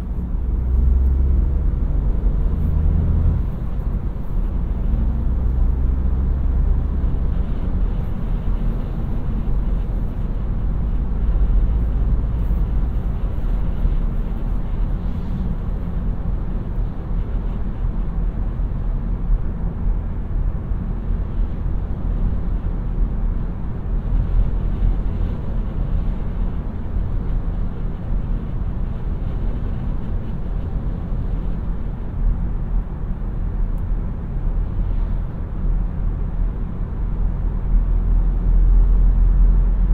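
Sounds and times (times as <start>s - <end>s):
tyre and road noise: 0.0s - 19.3s
car engine low rumble: 0.0s - 39.9s.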